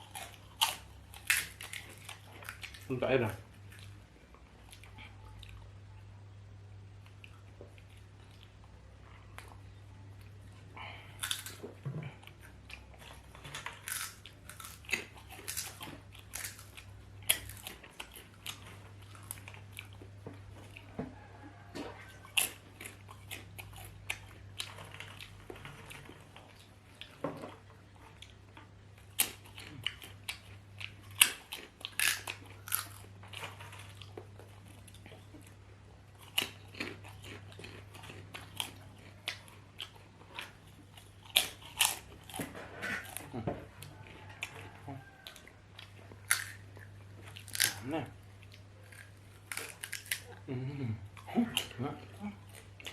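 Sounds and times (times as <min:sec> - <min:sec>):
person chewing and crunching: 0:00.0 - 0:05.8, 0:07.0 - 0:52.9
low steady hum: 0:00.0 - 0:52.9.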